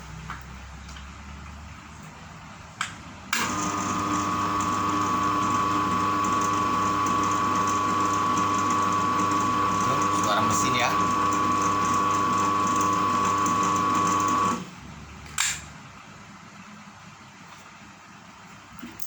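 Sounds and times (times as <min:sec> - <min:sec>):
machine running with high whine: 0:03.5 - 0:14.7.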